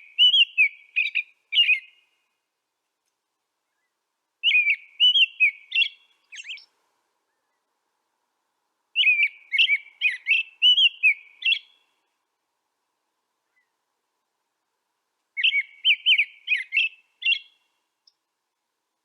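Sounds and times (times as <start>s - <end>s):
songbird warbling chirps: 0.0s - 2.4s, 3.6s - 7.7s, 9.0s - 12.1s, 13.4s - 13.8s, 15.4s - 18.3s.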